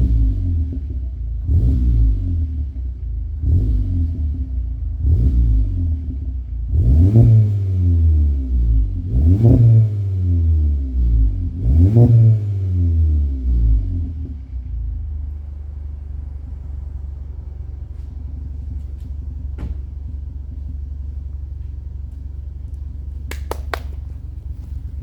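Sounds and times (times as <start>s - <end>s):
car engine idling: 0.0s - 7.1s, 12.8s - 25.0s.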